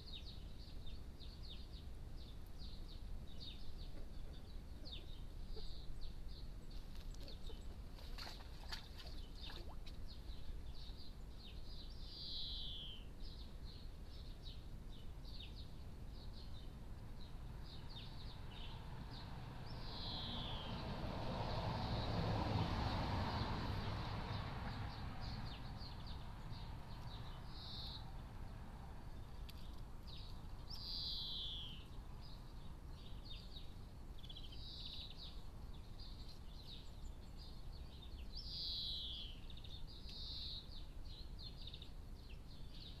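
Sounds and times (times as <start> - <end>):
songbirds singing: 0.0 - 43.0.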